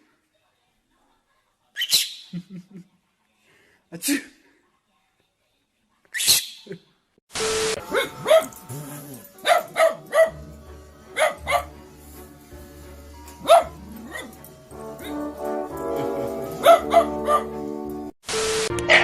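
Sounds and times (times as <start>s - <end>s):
background music: 7.3s - 19.0s
dog barking: 7.8s - 11.8s, 13.4s - 17.6s.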